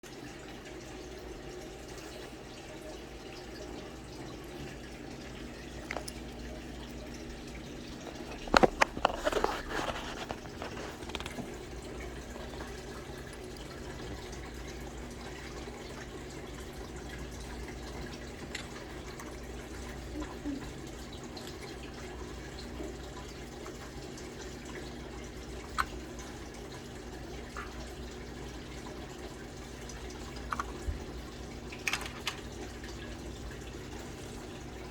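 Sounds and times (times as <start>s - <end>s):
steady background hum: 0.2s - 34.9s
clicks and rattles of server parts: 31.8s - 32.5s.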